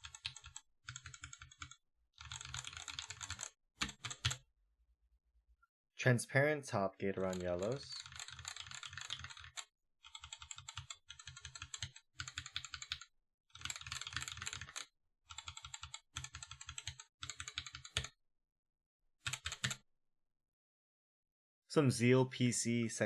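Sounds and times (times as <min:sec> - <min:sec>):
mechanical keyboard typing: 0:00.0 - 0:04.4, 0:07.2 - 0:18.1, 0:19.2 - 0:19.8.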